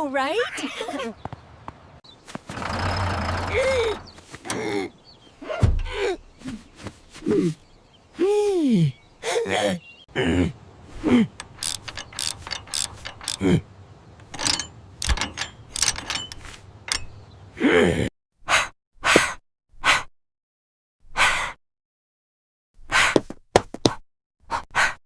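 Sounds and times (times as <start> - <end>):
rapid mechanical clicking and rattling: 2.5 - 4.1, 11.4 - 13.6, 14.2 - 17.2
short bursts of noise: 11.4 - 13.4.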